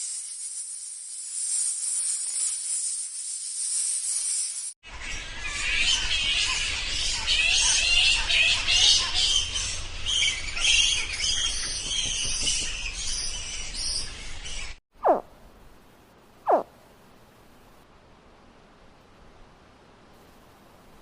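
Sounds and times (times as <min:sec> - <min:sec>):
high-pitched animal chirps: 0:15.0 - 0:15.2, 0:16.5 - 0:16.7.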